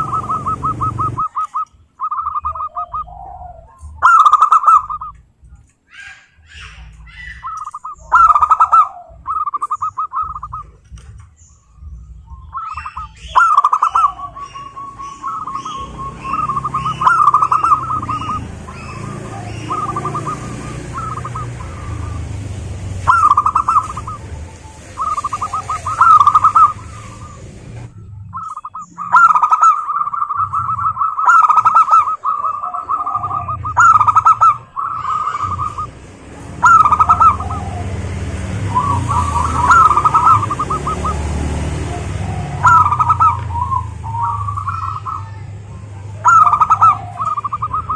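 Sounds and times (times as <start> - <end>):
doves cooing: 0.0 - 47.9.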